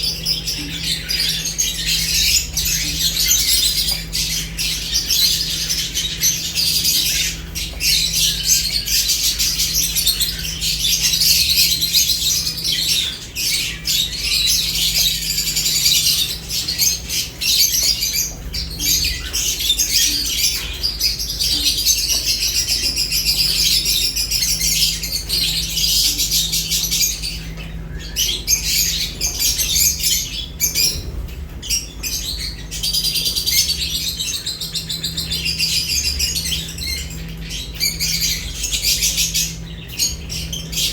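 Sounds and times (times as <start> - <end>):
lovebirds chirping and squawking: 0.0 - 40.9.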